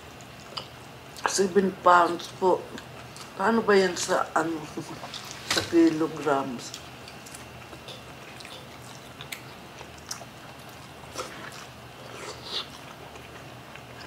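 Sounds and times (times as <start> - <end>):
steady low hum: 0.0 - 14.0
people chewing: 0.1 - 1.3, 6.6 - 14.0.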